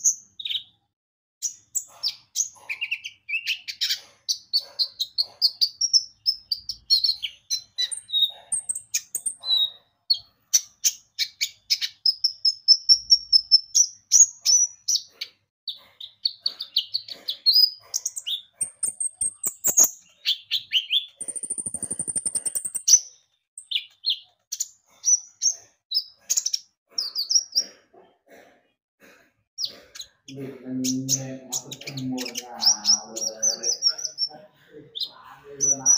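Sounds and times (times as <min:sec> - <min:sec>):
sunbird singing: 0:16.7 - 0:24.2, 0:30.0 - 0:35.9
buzzy high bird trill: 0:18.0 - 0:23.0.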